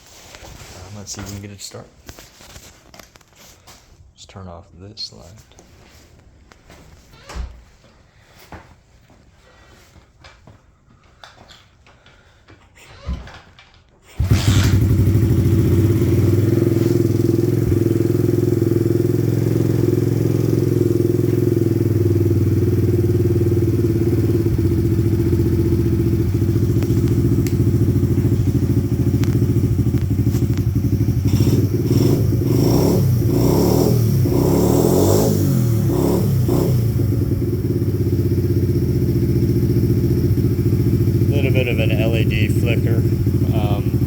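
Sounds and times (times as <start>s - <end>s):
motorbike engine starting and idling: 13.3s - 44.0s.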